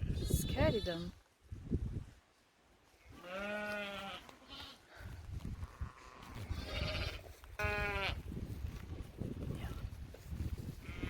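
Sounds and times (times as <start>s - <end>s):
livestock bleating: 3.1s - 5.0s, 5.6s - 8.2s.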